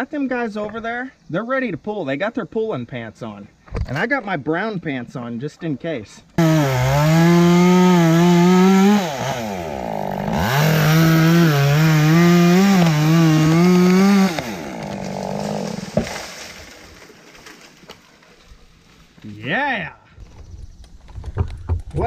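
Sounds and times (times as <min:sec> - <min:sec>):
chainsaw cutting wood: 0:06.4 - 0:17.9
sharp wood crack: 0:06.4 - 0:18.5.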